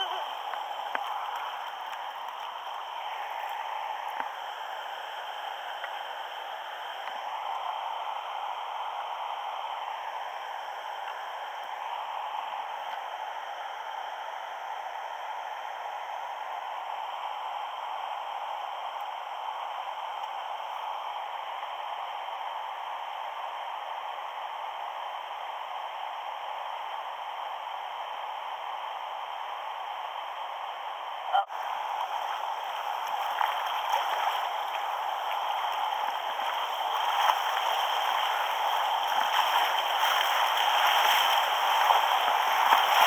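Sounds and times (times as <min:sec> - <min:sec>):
river water rushing: 0:00.0 - 0:15.6, 0:31.5 - 0:43.0.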